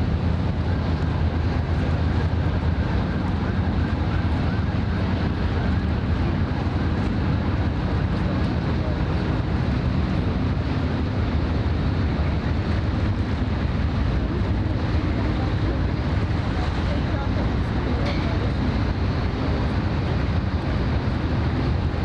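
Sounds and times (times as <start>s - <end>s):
ship engines rumbling: 0.0s - 22.0s
wind buffeting microphone: 0.0s - 22.0s.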